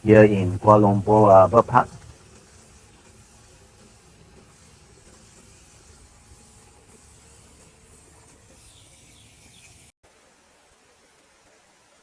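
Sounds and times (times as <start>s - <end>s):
faint outdoor hiss: 0.0s - 12.0s
bird chirps: 8.6s - 9.9s.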